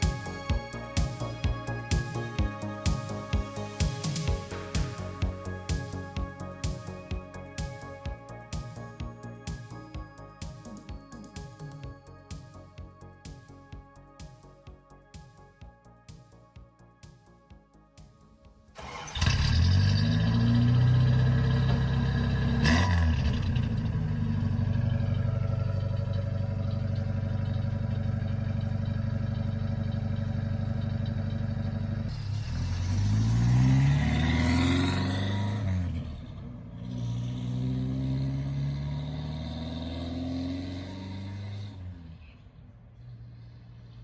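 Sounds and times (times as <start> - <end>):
pickup engine accelerating: 18.8 - 44.0.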